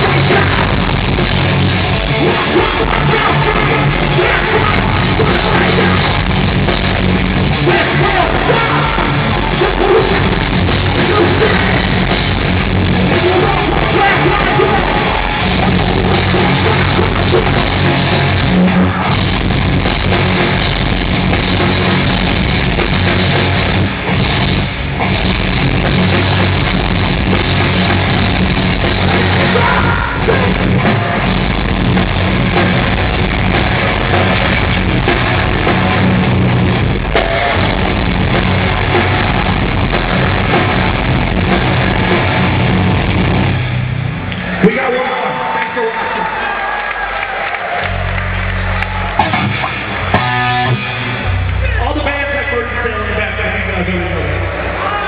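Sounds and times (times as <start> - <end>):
heavy rock band playing: 0.0 - 55.0.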